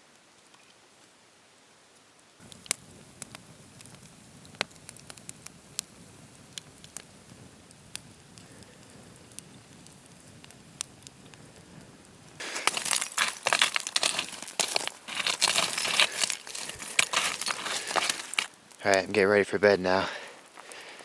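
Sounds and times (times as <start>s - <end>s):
sharp crackles: 2.4s - 21.0s
crinkling and rustling material: 12.4s - 18.9s.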